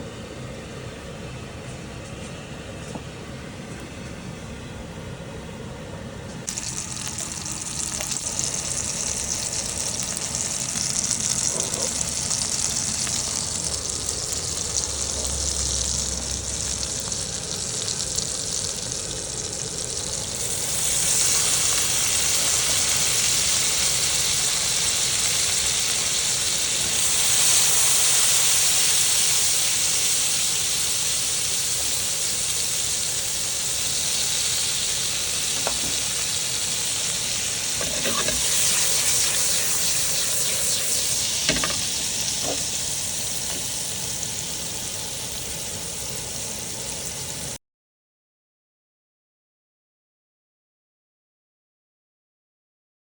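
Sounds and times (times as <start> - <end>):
food sizzling in a pan: 6.5 - 47.6.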